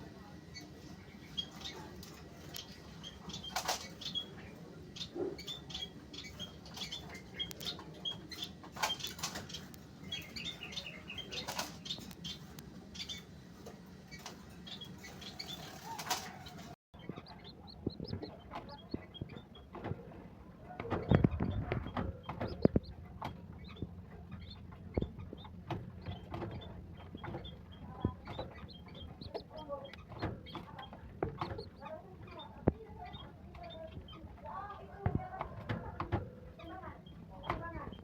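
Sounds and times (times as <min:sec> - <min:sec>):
squab squeaky peeps: 0:00.4 - 0:13.3, 0:14.1 - 0:38.0
wing flutters and rustles: 0:00.4 - 0:17.3.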